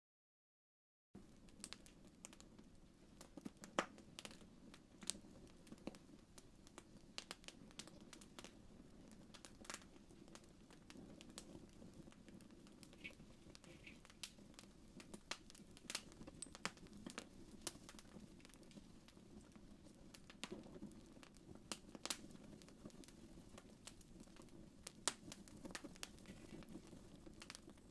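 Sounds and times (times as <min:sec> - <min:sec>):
wood fire crackling: 0:01.2 - 0:27.9.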